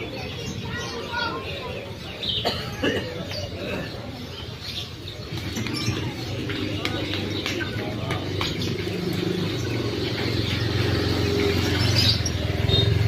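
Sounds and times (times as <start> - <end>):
bird chirps: 4.2 - 13.0.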